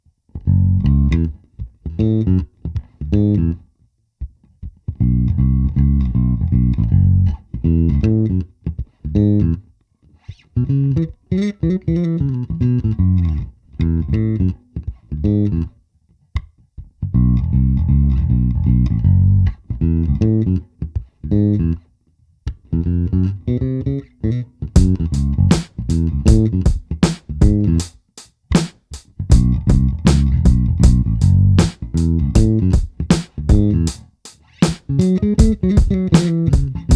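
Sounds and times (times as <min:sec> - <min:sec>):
plucked bass guitar: 0:00.3 - 0:09.7, 0:10.3 - 0:15.8, 0:16.4 - 0:27.9, 0:28.5 - 0:36.9.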